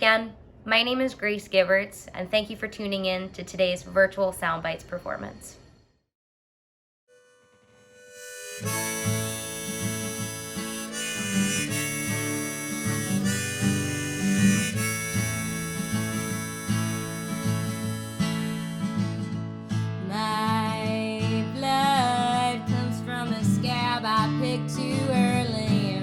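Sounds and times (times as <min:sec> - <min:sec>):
harmonica chords: 0:07.1 - 0:19.9
plucked acoustic guitar: 0:08.5 - 0:26.0.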